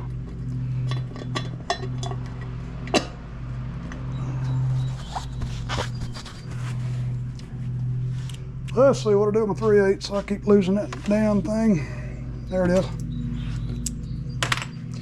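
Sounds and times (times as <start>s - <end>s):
steady low hum: 0.0s - 15.0s
metal tools clicking and clinking: 0.9s - 3.0s.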